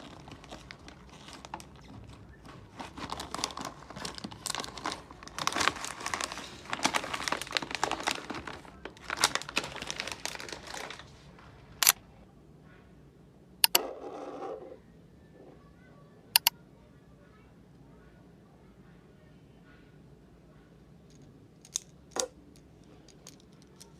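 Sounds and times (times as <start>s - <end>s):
packaging crinkling: 0.0s - 11.3s.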